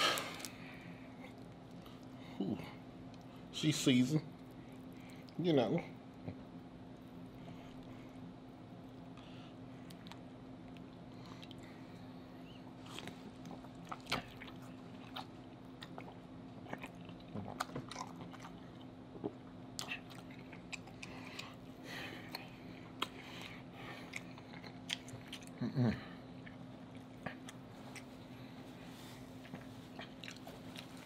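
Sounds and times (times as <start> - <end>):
faint low hum: 0.0 - 31.0
person chewing and biting: 12.8 - 21.7, 22.3 - 25.6, 29.3 - 31.0.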